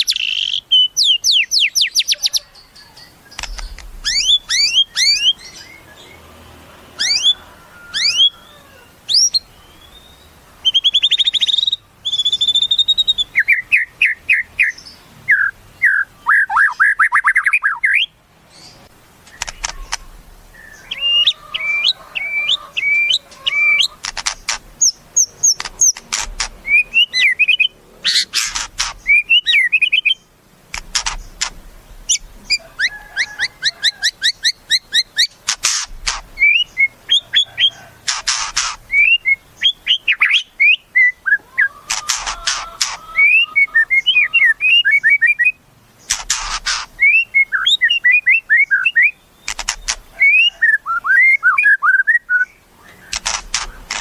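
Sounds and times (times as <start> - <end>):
harsh rasping bird notes: 18.7 - 30.1, 30.8 - 40.6, 41.3 - 47.4, 52.8 - 54.0
shama whistled song and trills: 26.6 - 27.7, 29.0 - 30.2, 36.4 - 37.0, 38.9 - 41.7, 47.0 - 49.2, 49.8 - 52.6.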